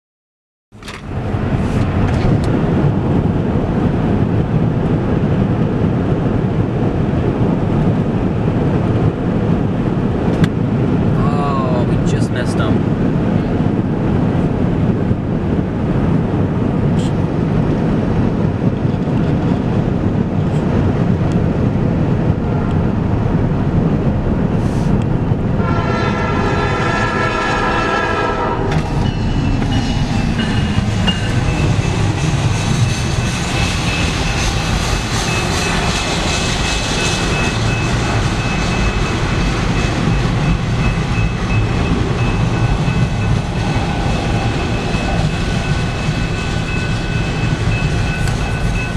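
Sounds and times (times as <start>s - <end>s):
locomotive rumbling: 0.7s - 48.9s
train cars rolling on rails: 0.7s - 48.9s
train horn: 25.6s - 28.8s.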